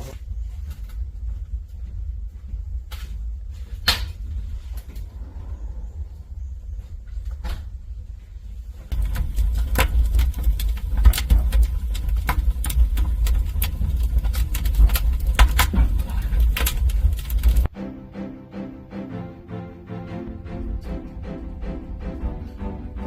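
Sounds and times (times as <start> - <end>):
low rumble of stove: 0.0 - 17.7
wood fire crackling: 0.0 - 17.8.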